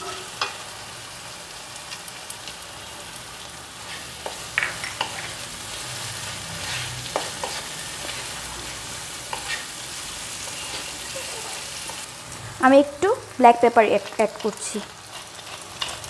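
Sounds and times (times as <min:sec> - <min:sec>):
food sizzling in oil: 0:00.0 - 0:16.0
wooden spatula scraping pan: 0:06.5 - 0:09.8, 0:10.4 - 0:12.0, 0:14.4 - 0:16.0.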